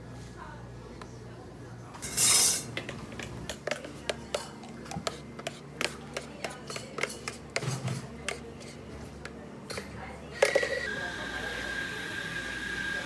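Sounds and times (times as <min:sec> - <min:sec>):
cups and dishes clinking: 0:02.0 - 0:08.4.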